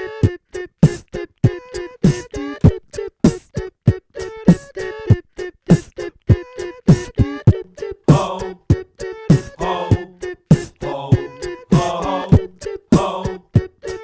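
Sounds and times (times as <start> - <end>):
beatboxing drum sounds: 0.2 - 14.0
short hummed notes: 9.4 - 13.4.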